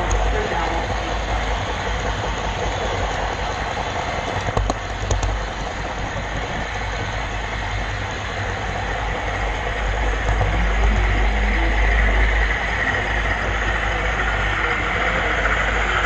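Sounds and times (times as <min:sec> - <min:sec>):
model train rolling rumble: 0:00.0 - 0:16.0.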